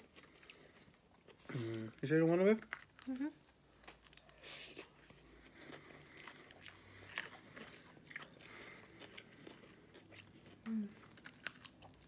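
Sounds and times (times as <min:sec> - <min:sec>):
mouths chewing food: 0:03.8 - 0:12.0.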